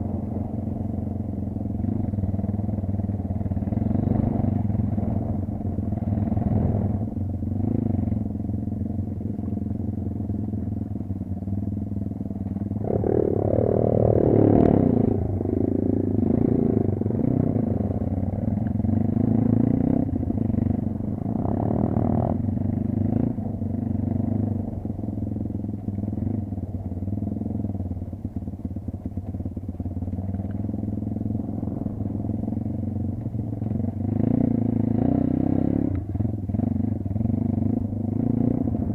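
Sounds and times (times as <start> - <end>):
dirt bike engine revving: 12.8 - 23.4.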